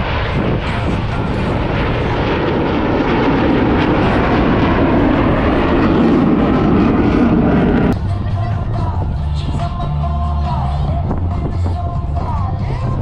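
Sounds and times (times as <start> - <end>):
jet aircraft passing: 0.0 - 9.7.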